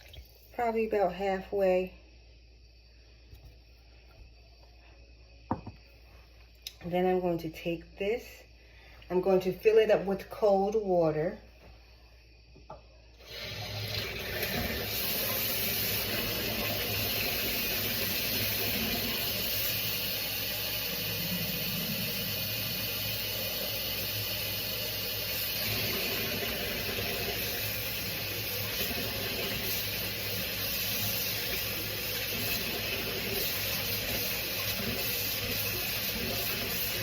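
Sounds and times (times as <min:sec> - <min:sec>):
tap water filling a bottle: 0:00.0 - 0:00.5, 0:13.3 - 0:22.8, 0:23.4 - 0:37.0.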